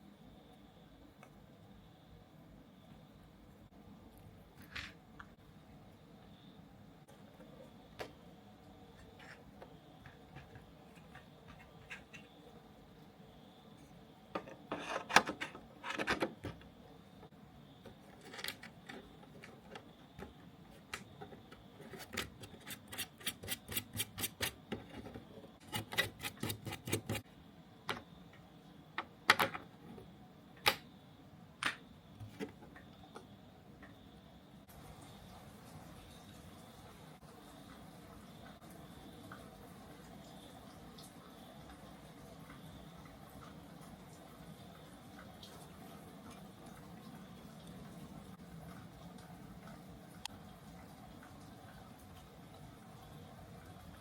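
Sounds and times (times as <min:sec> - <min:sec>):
tool scraping and rubbing: 0:14.4 - 0:16.2, 0:21.8 - 0:27.2.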